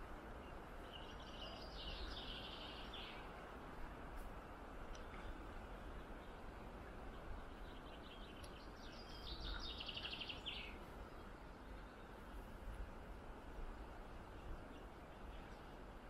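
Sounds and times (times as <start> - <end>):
low outdoor background rush: 0.0 - 16.0
songbird singing with trill: 0.4 - 3.3, 7.0 - 12.2.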